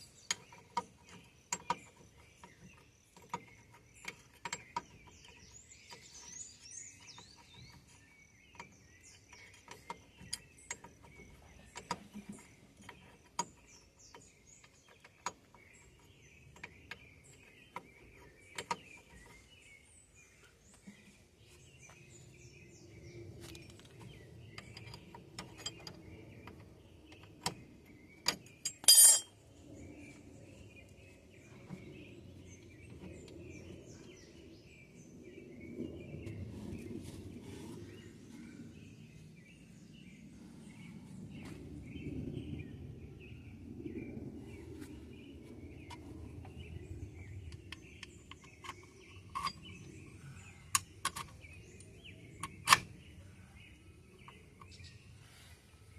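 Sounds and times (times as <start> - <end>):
birds chirping: 0.0 - 55.9
metal tools clinking: 28.6 - 29.4
low rumble: 29.5 - 48.2.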